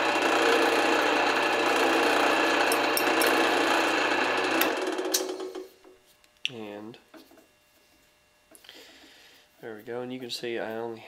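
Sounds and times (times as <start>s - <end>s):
drill press running: 0.0s - 5.9s.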